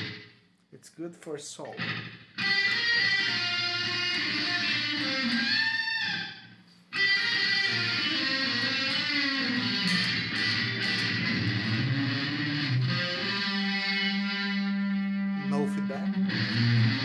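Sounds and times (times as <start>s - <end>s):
electric guitar chords with echo: 0.0s - 0.3s, 1.7s - 17.0s.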